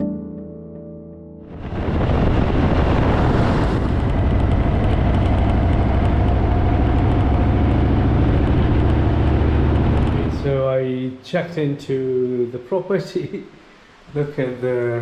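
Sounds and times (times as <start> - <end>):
broad rushing noise: 1.5 - 10.9
motorcycle engine rumble: 1.6 - 10.6.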